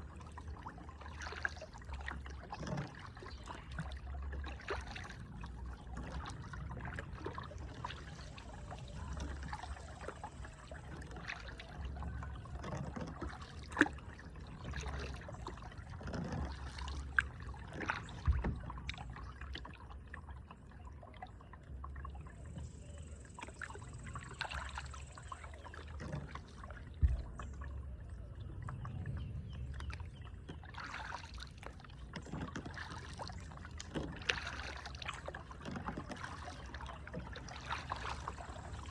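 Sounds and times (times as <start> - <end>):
paddle splashing water: 0.0 - 38.9.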